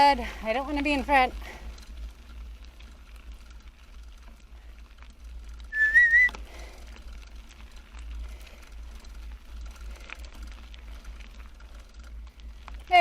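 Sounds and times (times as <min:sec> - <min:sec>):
short whistle: 0:05.8 - 0:06.4.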